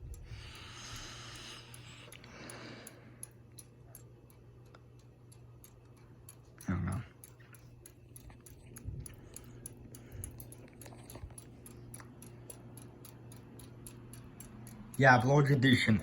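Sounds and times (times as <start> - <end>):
ceiling fan motor hum: 0.0 - 16.0
rapid even ticking: 0.0 - 16.0.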